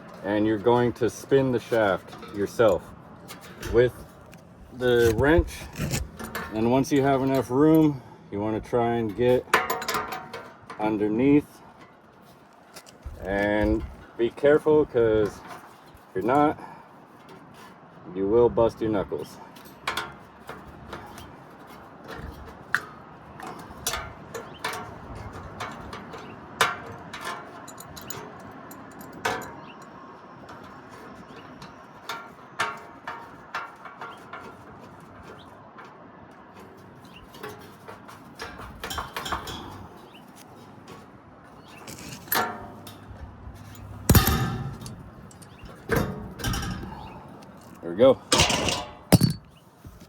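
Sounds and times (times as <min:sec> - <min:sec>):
metal clinks and scraping: 0:00.0 - 0:08.0, 0:08.9 - 0:16.5, 0:19.5 - 0:50.0
loud metal clanks: 0:41.8 - 0:47.2, 0:48.3 - 0:49.6.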